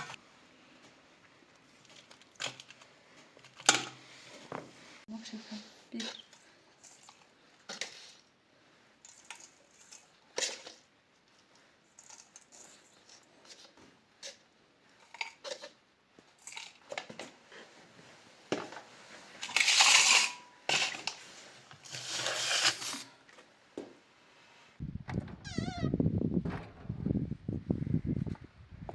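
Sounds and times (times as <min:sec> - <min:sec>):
rustling scraping noises: 0:17.3 - 0:23.2.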